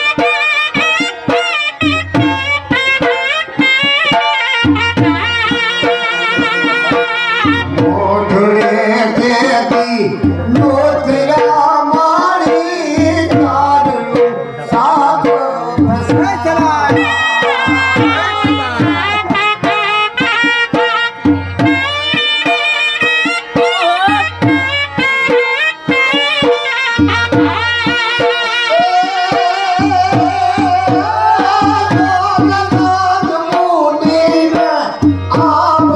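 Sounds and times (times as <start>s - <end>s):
double-reed pipe melody: 0.0s - 7.9s, 15.9s - 29.7s
drum beat: 0.0s - 35.9s.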